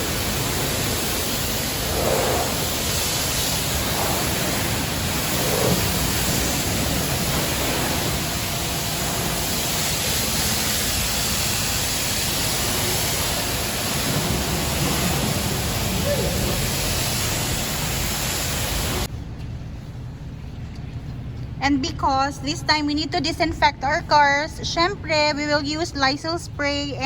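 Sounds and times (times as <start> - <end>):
pressure washer spraying water: 0.0 - 19.1.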